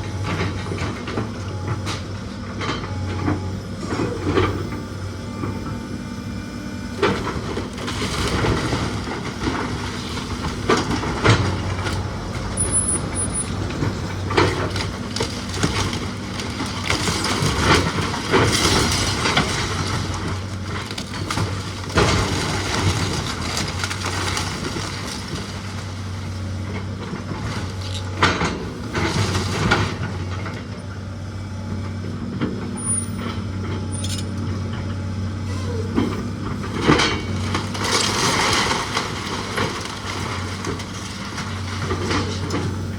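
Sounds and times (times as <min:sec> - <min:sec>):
heavy machine engine running: 0:00.0 - 0:42.9
wood cracking and splintering: 0:07.0 - 0:28.5, 0:36.5 - 0:42.9.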